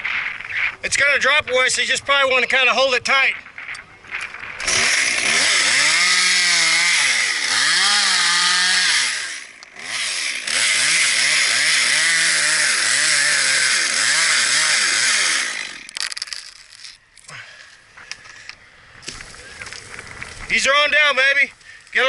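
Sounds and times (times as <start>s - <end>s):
chainsaw cutting wood: 4.2s - 17.0s.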